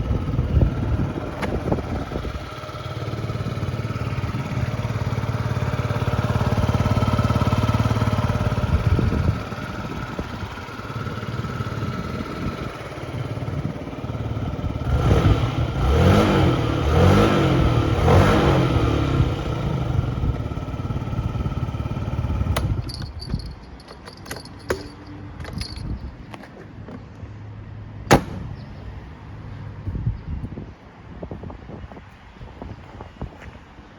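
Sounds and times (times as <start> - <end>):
scooter engine revving and idling: 0.0 - 23.1.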